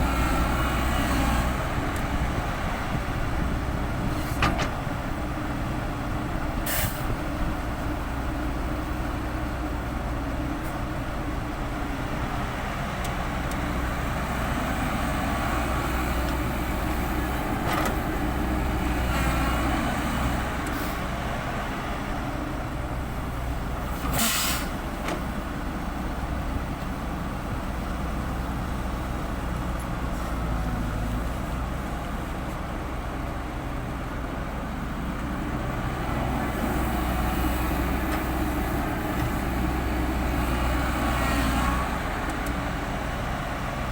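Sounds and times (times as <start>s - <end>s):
heavy diesel engines droning: 0.0s - 43.9s
short sharp hisses: 24.2s - 24.7s.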